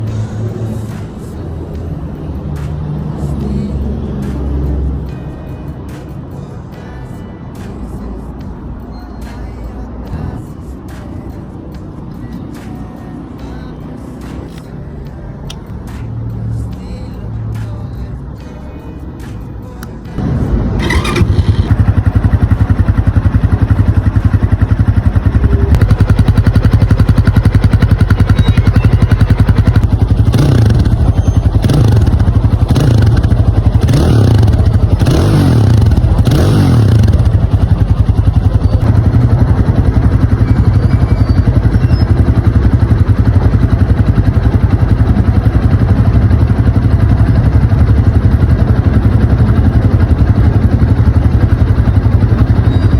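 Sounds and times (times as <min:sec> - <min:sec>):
motorcycle engine revving: 0:20.2 - 0:52.9
motorcycle engine starting: 0:20.5 - 0:52.9
motorcycle engine idling: 0:20.8 - 0:52.9.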